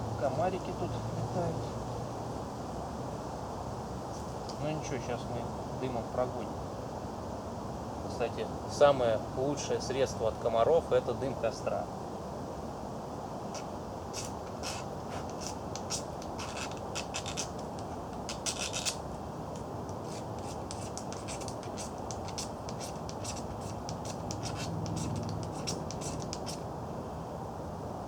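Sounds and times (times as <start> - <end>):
metal scraping fire striker: 13.6 - 19.0, 19.6 - 26.6.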